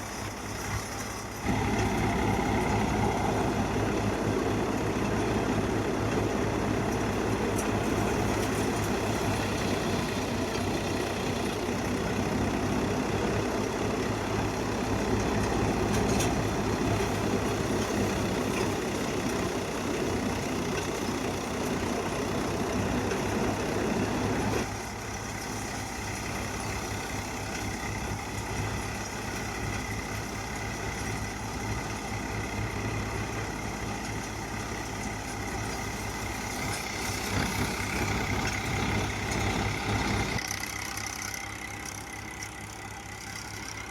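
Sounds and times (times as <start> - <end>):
thresher machine running: 0.0 - 43.9
tractor engine: 0.0 - 43.9.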